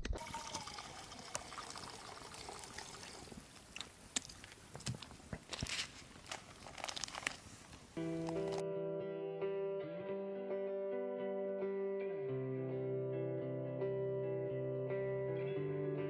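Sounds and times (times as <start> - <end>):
water trickling faintly: 0.1 - 5.5
small clicks and splashes: 1.1 - 7.4.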